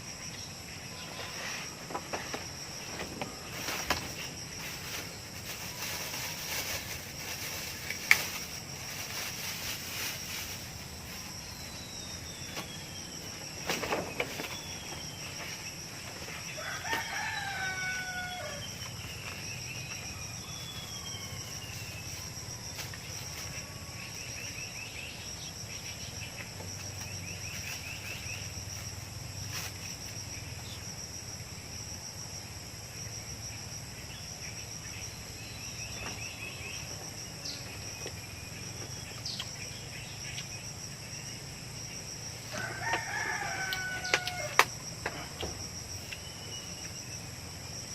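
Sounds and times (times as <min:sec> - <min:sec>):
high chorus of insects: 0:00.0 - 0:47.9
rooster crowing: 0:16.4 - 0:18.8, 0:42.5 - 0:44.7.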